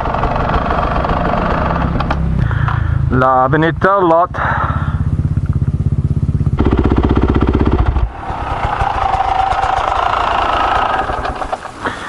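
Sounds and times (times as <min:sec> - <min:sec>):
two-stroke engine revving: 0:00.0 - 0:12.0.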